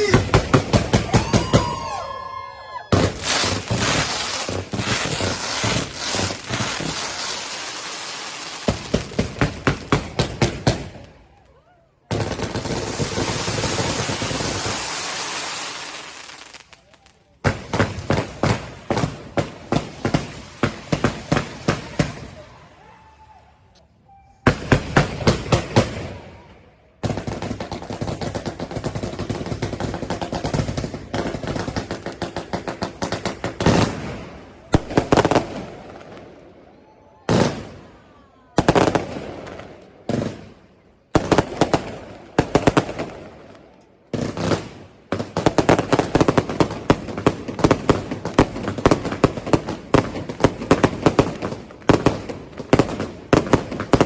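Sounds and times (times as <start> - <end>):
fireworks bangs and crackles: 0.0 - 2.3, 2.9 - 22.7, 24.4 - 54.0.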